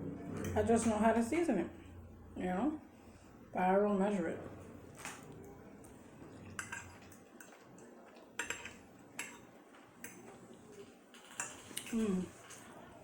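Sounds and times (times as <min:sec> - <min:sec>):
cutlery clinking on a plate: 0:08.4 - 0:09.4.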